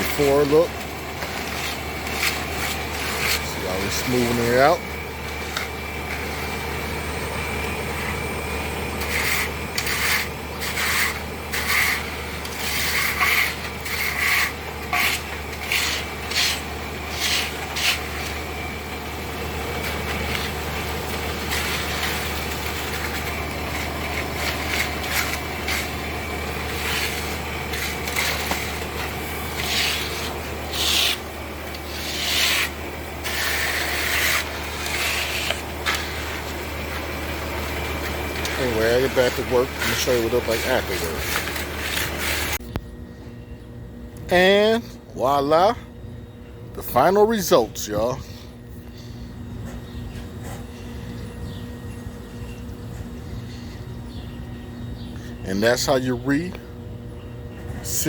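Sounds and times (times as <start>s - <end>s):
trowel scraping wet cement: 0.0s - 6.5s, 8.9s - 18.7s, 19.6s - 42.6s
steady low hum: 0.0s - 58.0s.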